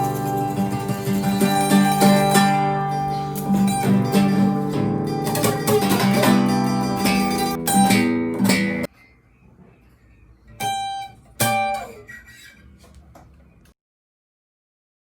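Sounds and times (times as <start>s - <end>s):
guitar strumming chords: 0.0s - 8.9s, 10.6s - 12.1s.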